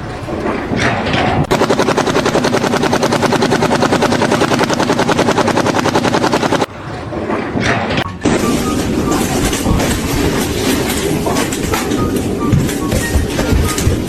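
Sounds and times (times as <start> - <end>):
fast mechanical rattle: 0.6 - 6.7.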